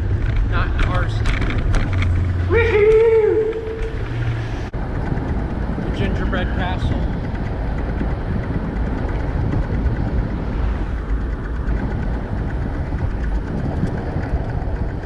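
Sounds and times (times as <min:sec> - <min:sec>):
road and traffic noise: 0:00.0 - 0:15.0
wind buffeting microphone: 0:00.0 - 0:15.0.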